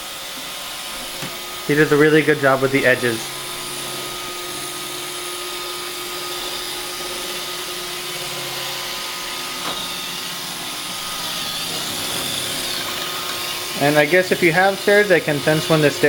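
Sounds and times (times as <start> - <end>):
robot vacuum whirring: 0.0 - 16.0.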